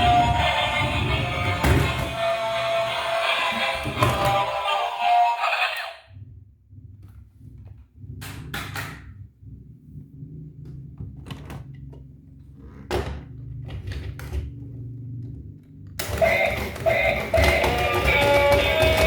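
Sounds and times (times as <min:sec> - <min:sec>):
knocks and clicks of handled objects: 0:16.0 - 0:19.0.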